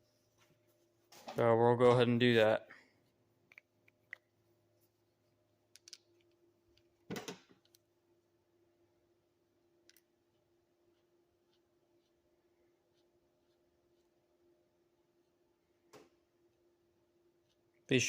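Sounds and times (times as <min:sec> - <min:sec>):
faint steady hum: 0:00.0 - 0:18.0
tools clicking and knocking: 0:05.8 - 0:07.8.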